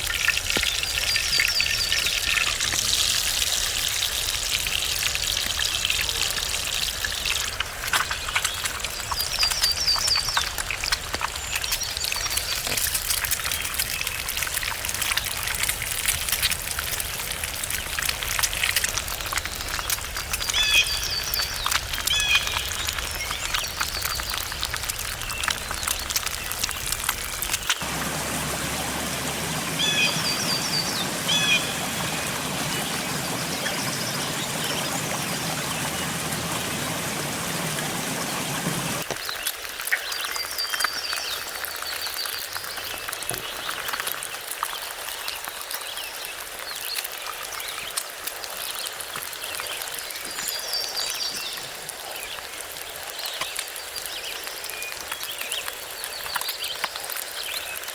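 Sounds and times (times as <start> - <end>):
steady hiss with crackling: 0.0 - 57.9
repeated chirping calls: 27.9 - 39.0.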